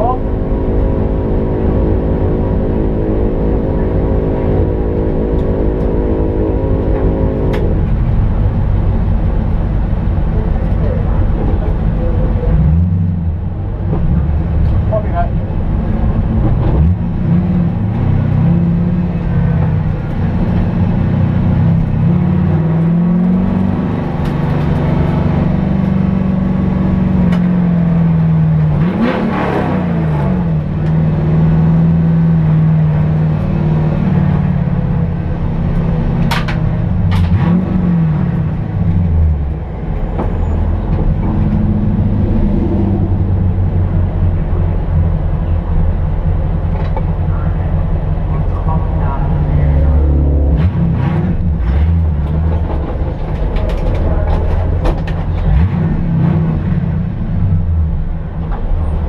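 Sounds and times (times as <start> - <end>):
engine idling from inside car: 44.4 - 50.0.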